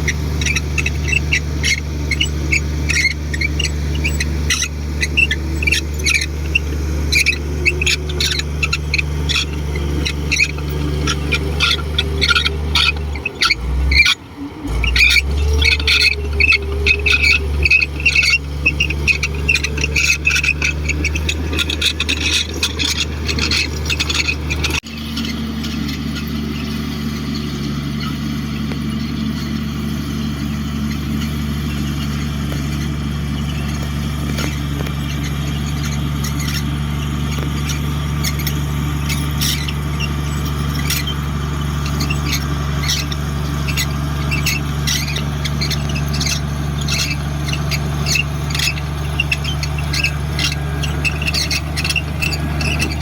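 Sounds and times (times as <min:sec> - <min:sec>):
bulldozer diesel engine running: 0:00.0 - 0:53.0
high squeals and clicks: 0:00.0 - 0:53.0.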